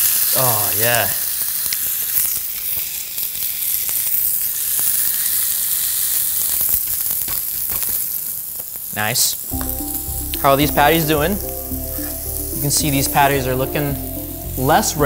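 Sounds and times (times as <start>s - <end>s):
food sizzling on a griddle: 0.0s - 15.0s.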